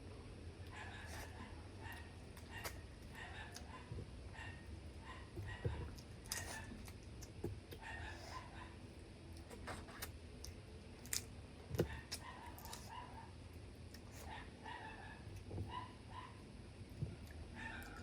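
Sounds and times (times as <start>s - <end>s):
chewing: 5.2s - 8.4s, 9.3s - 13.0s.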